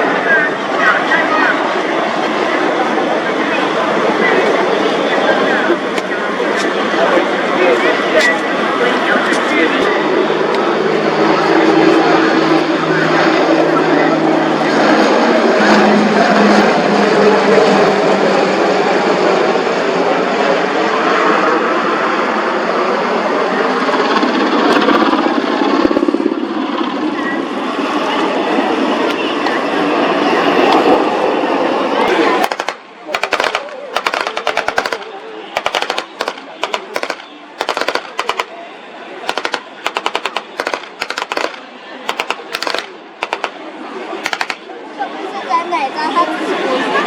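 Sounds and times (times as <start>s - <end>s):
helicopter flying past: 0.0s - 47.0s
automatic weapons firing bursts: 32.4s - 38.6s, 39.3s - 43.6s, 44.2s - 44.6s.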